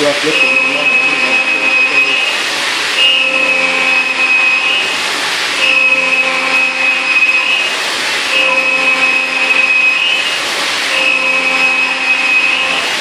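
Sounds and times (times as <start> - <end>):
milling machine cutting whine: 0.0 - 13.0.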